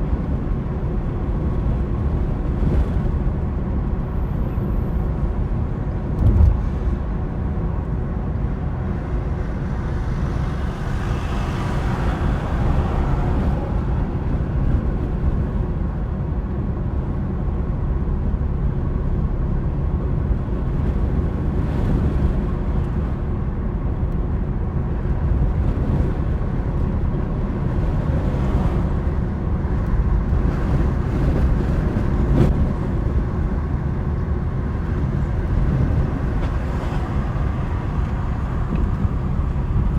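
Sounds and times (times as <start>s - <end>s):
road and engine rumble: 0.0s - 39.9s
short low thump: 6.2s - 6.9s.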